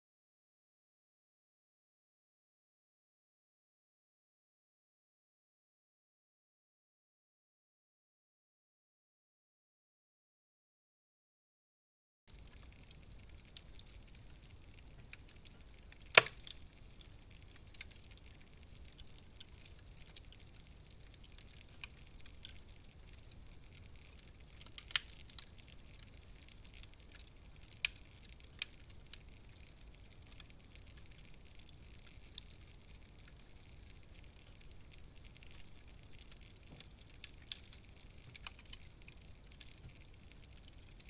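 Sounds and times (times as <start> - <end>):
wood fire crackling: 12.3 - 41.0.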